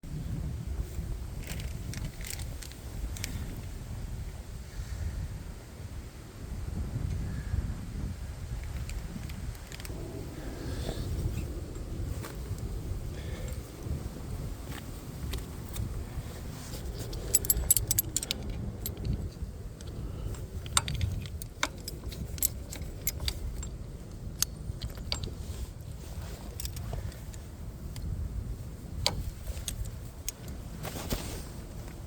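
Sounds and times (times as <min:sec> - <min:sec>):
low steady rumble: 0:00.0 - 0:32.0
light metallic clicks and jingling: 0:01.4 - 0:03.7, 0:08.6 - 0:10.0, 0:13.3 - 0:14.0, 0:14.7 - 0:32.0.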